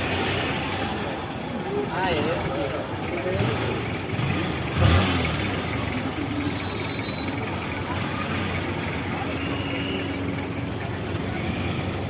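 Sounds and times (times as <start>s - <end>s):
road noise: 0.0s - 12.0s
vehicle engine: 0.0s - 12.0s.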